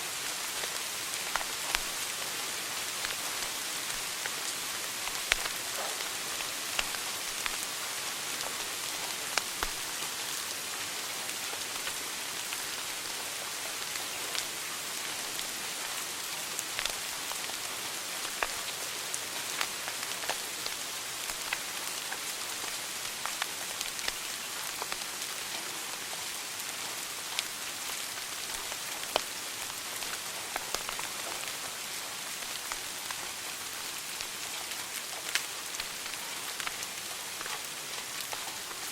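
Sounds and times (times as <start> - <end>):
wood fire crackling: 0.4 - 9.8, 18.2 - 18.6, 28.2 - 31.6.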